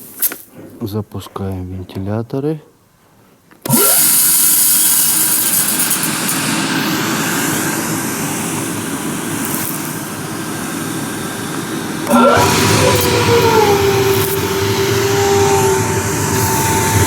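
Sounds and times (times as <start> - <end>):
aeration fans rushing air: 3.6 - 17.0
fan tone gliding up and down: 3.7 - 17.0.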